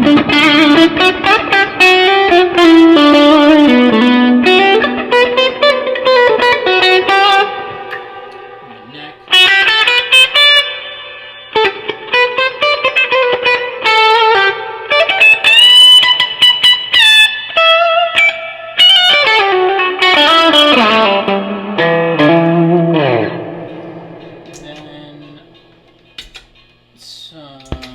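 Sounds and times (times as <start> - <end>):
overdriven electric guitar lead: 0.0 - 26.9.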